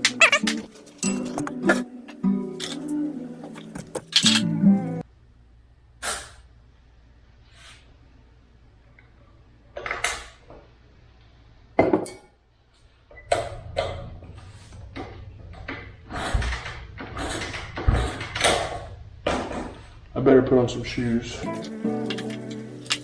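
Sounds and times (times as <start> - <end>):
hard objects knocking and clattering: 3.6 - 4.5, 21.4 - 23.0.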